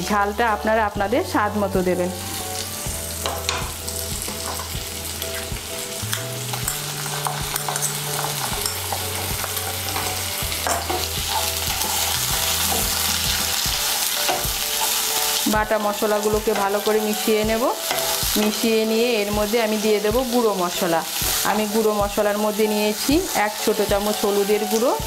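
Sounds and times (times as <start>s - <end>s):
food sizzling in oil: 0.0s - 25.0s
spatula scraping a pan: 6.5s - 15.2s.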